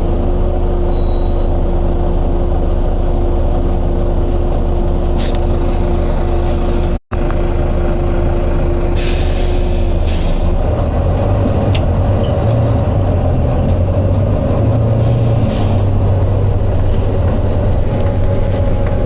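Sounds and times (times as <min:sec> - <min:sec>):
bus diesel engine droning: 0:00.0 - 0:19.0
air brake hisses: 0:08.9 - 0:10.5.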